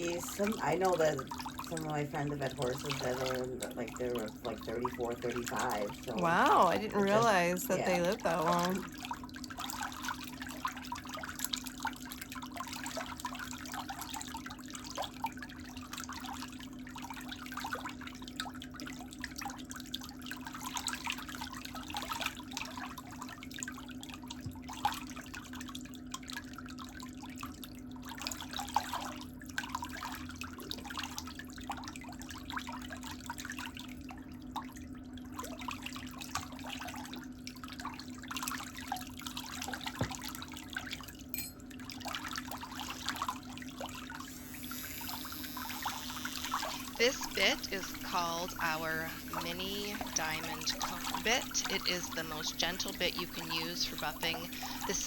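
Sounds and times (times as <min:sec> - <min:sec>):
water trickling and splashing: 0:00.0 - 0:55.0
low hum: 0:44.2 - 0:55.0.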